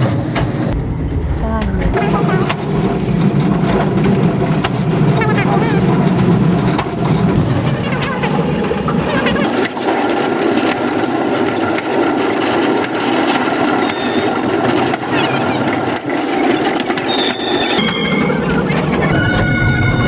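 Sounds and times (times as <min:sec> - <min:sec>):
train rattling rumble: 0:00.0 - 0:20.0
high squeal: 0:13.8 - 0:14.6, 0:17.0 - 0:20.0.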